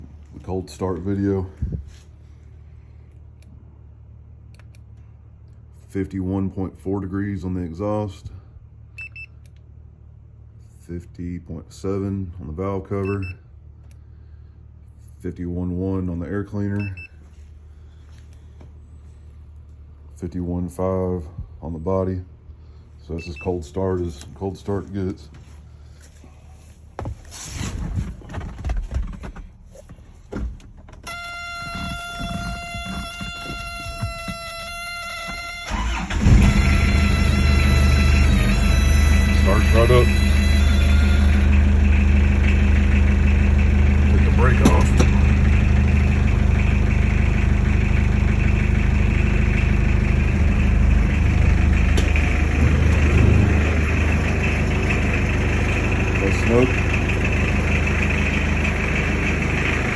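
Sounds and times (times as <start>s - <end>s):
engine running with high whine: 31.0s - 59.9s
diesel engine starting: 31.1s - 59.9s.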